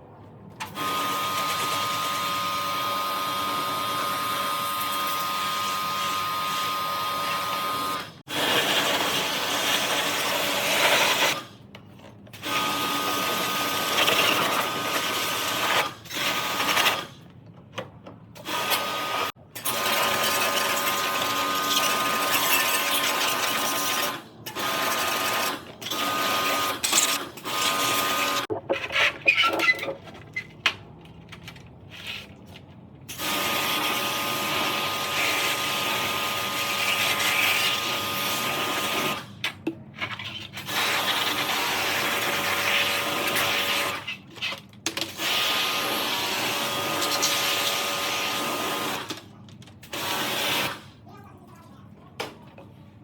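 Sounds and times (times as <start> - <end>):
small electric motor running: 0.8 - 9.2.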